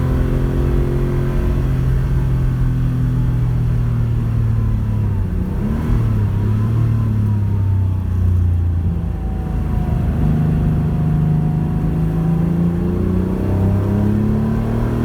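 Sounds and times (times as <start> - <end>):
rally car engine revving: 10.0 - 15.0.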